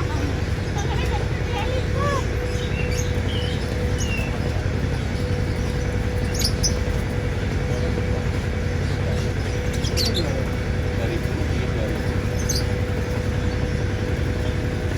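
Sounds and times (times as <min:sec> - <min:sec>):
constant hum: 0:00.0 - 0:14.9
low rumbling background noise: 0:00.0 - 0:14.9
bird chirps: 0:05.2 - 0:07.1.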